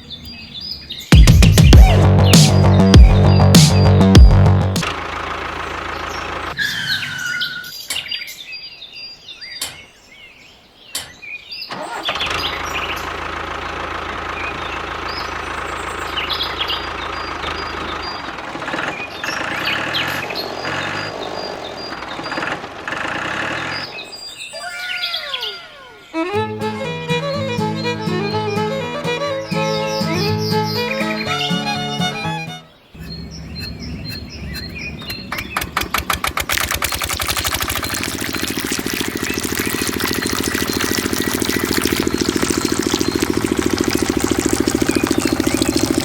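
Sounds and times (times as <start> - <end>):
birds chirping: 0.0 - 46.0
small engine running: 4.4 - 6.6, 11.8 - 24.1, 33.0 - 46.0.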